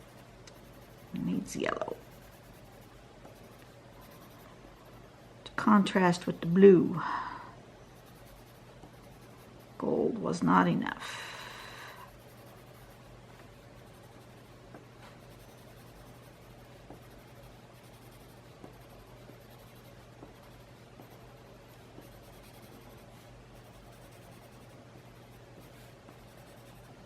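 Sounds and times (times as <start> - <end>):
pencil scratching on paper: 0.0 - 5.1, 7.9 - 9.7, 12.0 - 27.0
steady low hum: 0.0 - 27.0.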